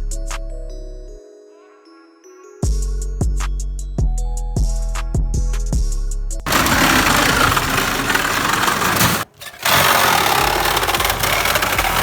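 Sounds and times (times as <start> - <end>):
power tool running: 6.5 - 12.0.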